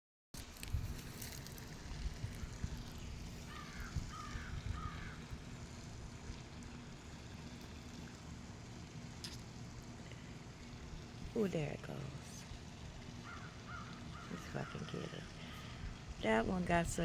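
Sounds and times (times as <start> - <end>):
steady low rumble: 0.4 - 13.2
bird harsh calls: 3.5 - 5.2, 13.2 - 15.4.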